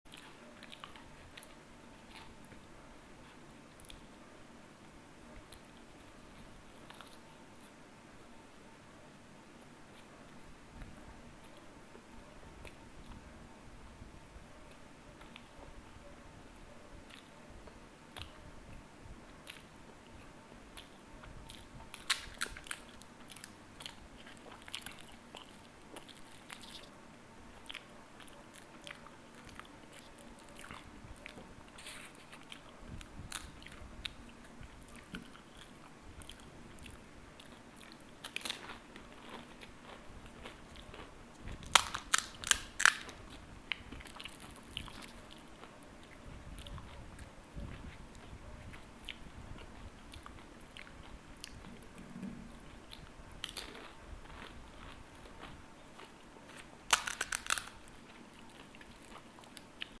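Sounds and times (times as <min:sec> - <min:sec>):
chewing: 0:00.1 - 0:04.2, 0:05.4 - 0:07.8, 0:16.6 - 0:26.9, 0:27.5 - 1:00.0
crisp shells crunching: 0:41.7 - 0:43.2, 0:56.9 - 0:58.0.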